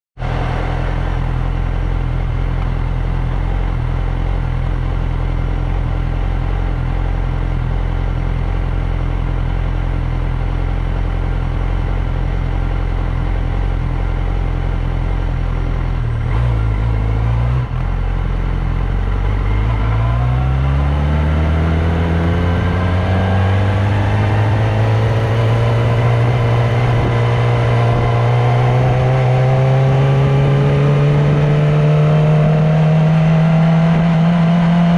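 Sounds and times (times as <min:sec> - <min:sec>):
motorcycle engine revving: 0:00.2 - 0:34.9
motorcycle engine idling: 0:00.8 - 0:16.3.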